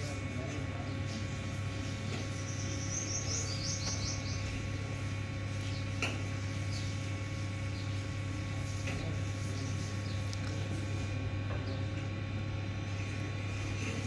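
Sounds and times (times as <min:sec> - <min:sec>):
steady low hum: 0:00.0 - 0:14.0
bird chirping: 0:02.3 - 0:04.7.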